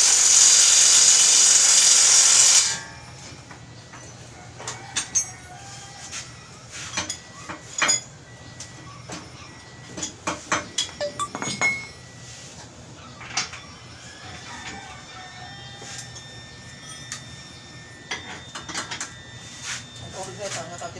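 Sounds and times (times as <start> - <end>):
metal tools clinking and knocking: 3.5 - 5.7, 6.8 - 12.1.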